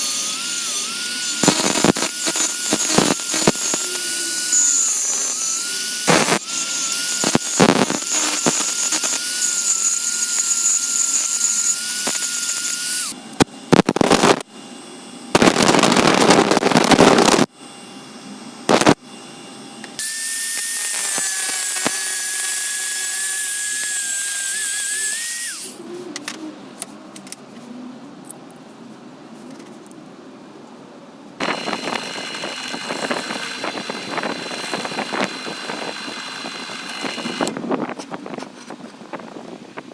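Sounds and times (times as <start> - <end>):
loud harsh noise: 0.0 - 9.7, 31.4 - 37.5
belt grinder high whine: 0.0 - 14.5, 20.0 - 25.8, 31.4 - 37.6.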